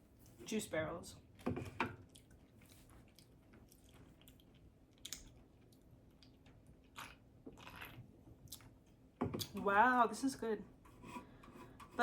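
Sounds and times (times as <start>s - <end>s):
chewing food: 2.0s - 9.6s.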